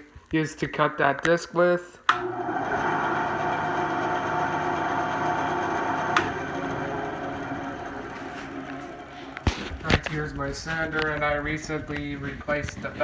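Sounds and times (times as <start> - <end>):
bandsaw switch click: 2.1 - 2.3
bandsaw motor humming: 2.1 - 12.7.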